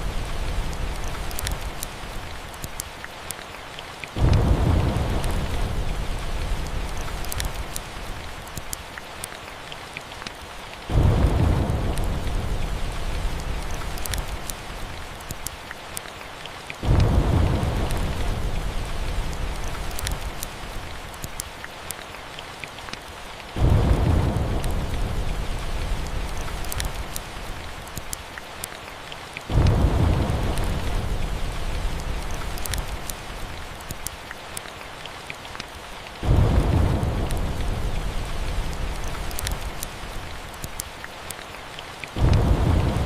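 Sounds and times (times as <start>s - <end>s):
steady rain: 0.0s - 43.0s
fireplace crackling: 10.2s - 15.9s, 23.6s - 28.7s, 29.5s - 34.7s, 35.6s - 41.4s
rolls of thunder: 10.9s - 13.7s, 16.8s - 18.9s, 29.5s - 32.3s, 36.2s - 39.2s, 42.2s - 43.0s.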